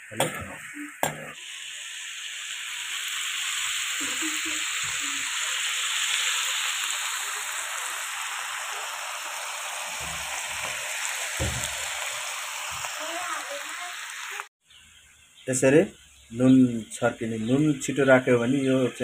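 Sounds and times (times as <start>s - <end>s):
food sizzling in hot oil: 0.0s - 15.2s.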